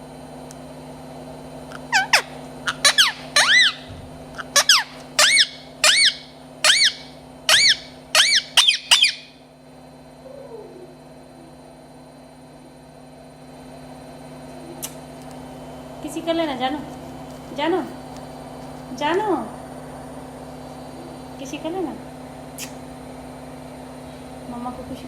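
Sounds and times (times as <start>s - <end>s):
parrot shrill calls: 1.8s - 9.4s.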